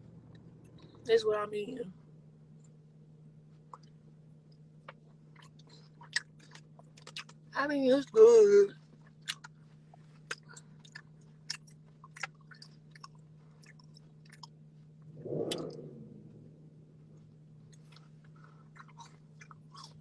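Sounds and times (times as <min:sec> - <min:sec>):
low car hum: 0:00.0 - 0:20.0
wet open-mouth chewing: 0:04.9 - 0:07.4, 0:09.0 - 0:14.6, 0:17.7 - 0:20.0
brief rush of noise: 0:15.2 - 0:16.9.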